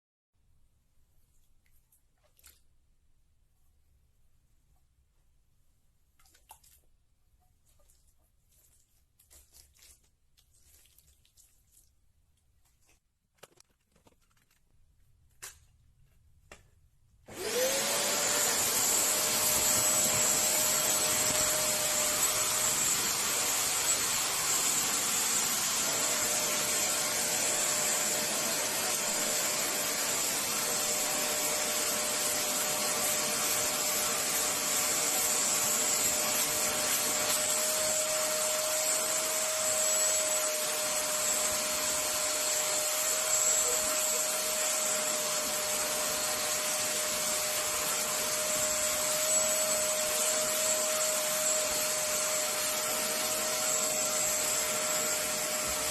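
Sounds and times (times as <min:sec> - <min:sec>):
vacuum cleaner running: 0:17.3 - 0:55.9.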